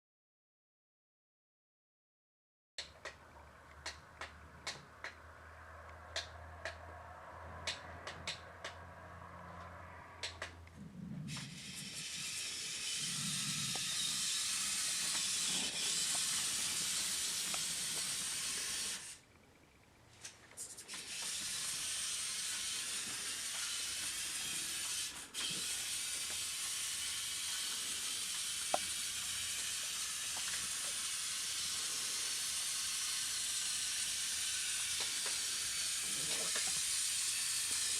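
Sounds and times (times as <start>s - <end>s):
sharp clicks: 5.9s - 6.8s
model truck hissing: 11.2s - 19.2s, 20.6s - 37.9s.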